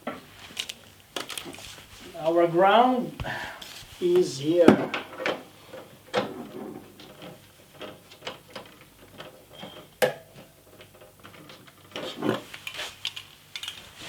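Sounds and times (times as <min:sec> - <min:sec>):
cable and clamp clicks: 0:12.5 - 0:13.9.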